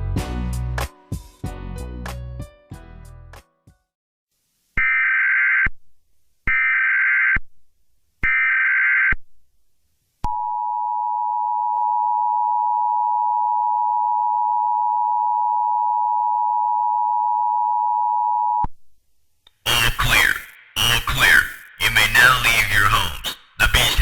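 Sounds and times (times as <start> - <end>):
digital data chirps: 19.7 - 24.0
two-tone attention signal: 19.7 - 24.0.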